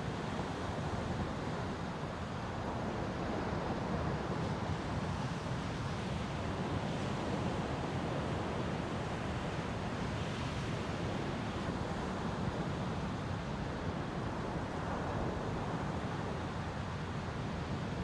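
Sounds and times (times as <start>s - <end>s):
ocean surf: 5.9s - 18.0s.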